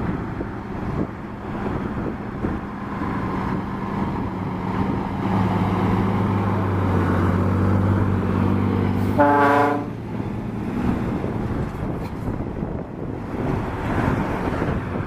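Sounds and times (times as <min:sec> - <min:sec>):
truck diesel engine pulling away: 0:00.0 - 0:09.2
truck horn blast: 0:09.0 - 0:10.0.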